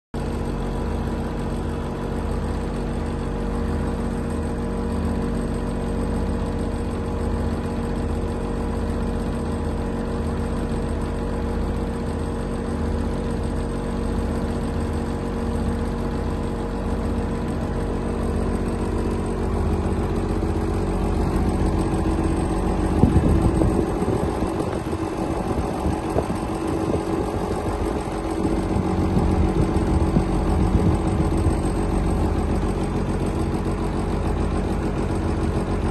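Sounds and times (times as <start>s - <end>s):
engine idling: 0.2s - 35.9s.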